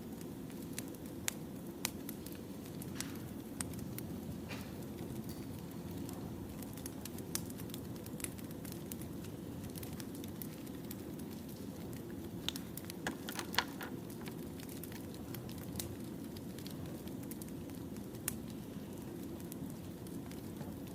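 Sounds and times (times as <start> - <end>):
firewood crackling and popping: 0.0 - 20.9.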